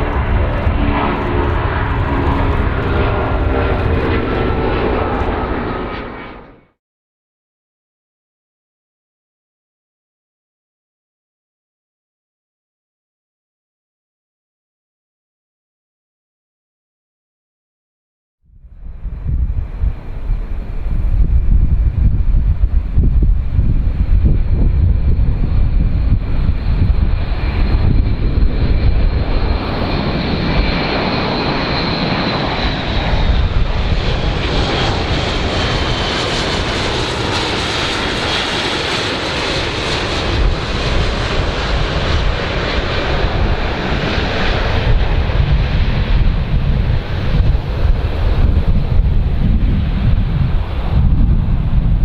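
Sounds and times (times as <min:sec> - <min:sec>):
airplane engines rumbling: 0:00.0 - 0:06.8, 0:18.5 - 0:52.0
high engine whine: 0:00.0 - 0:06.8, 0:18.6 - 0:52.0.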